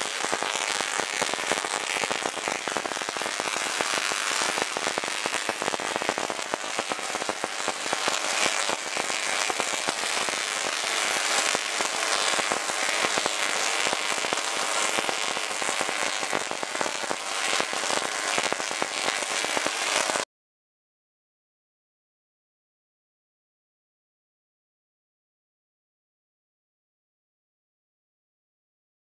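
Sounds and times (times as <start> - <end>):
tesla coil crackling sparks: 0.0 - 20.2.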